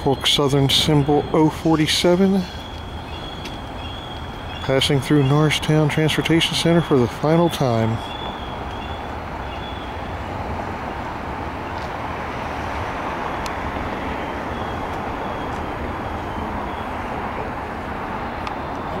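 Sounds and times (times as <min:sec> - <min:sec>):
faint high whine: 0:00.0 - 0:09.0.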